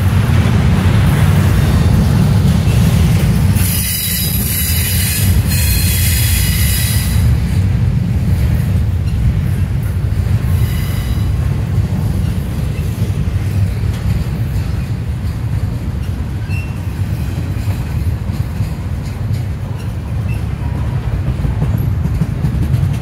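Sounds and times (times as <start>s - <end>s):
freight train wheels rumbling: 0.0s - 23.0s
wheel squeals: 16.0s - 18.1s.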